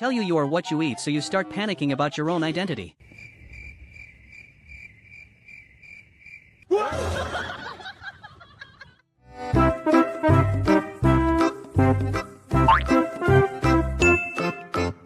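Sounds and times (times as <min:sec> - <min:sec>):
cricket chirping: 0:03.0 - 0:06.7.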